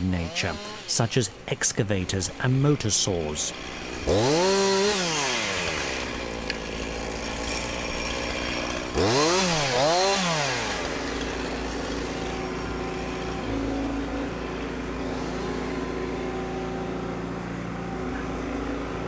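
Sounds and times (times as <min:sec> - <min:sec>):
chainsaw revving and idling: 0:00.0 - 0:19.0.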